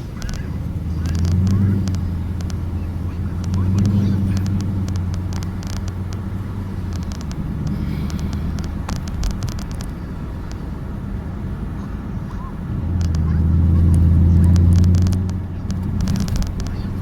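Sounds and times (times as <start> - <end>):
car engine droning: 0.0 - 17.0
light clicks: 0.1 - 10.7, 12.9 - 17.0.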